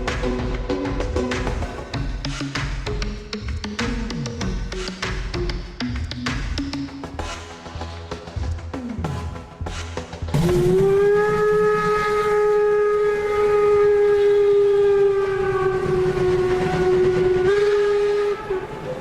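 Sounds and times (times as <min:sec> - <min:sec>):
model train horn blast: 0:10.6 - 0:18.8.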